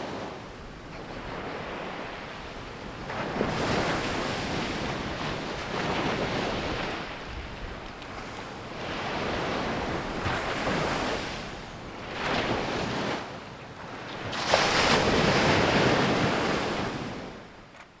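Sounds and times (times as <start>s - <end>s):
sea waves breaking on beach: 13.9s - 17.5s.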